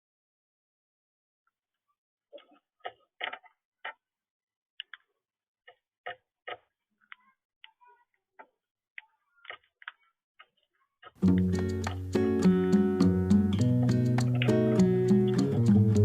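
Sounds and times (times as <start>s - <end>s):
parrots chirping and clicking: 13.0s - 15.7s.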